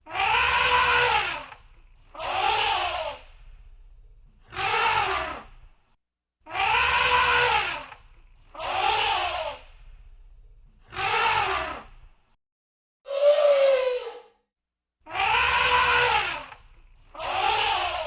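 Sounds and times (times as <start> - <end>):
elephant trumpeting: 0.1 - 1.5, 6.5 - 7.8, 15.2 - 16.5.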